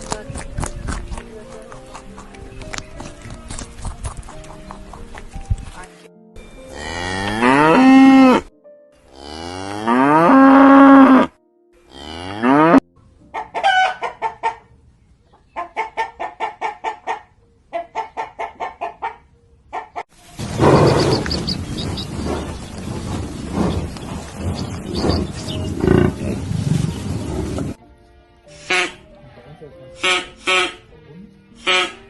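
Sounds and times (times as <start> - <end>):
chickens clucking: 0.4 - 5.5, 13.3 - 27.8
cow mooing: 6.7 - 8.5, 9.1 - 12.8, 25.7 - 26.4.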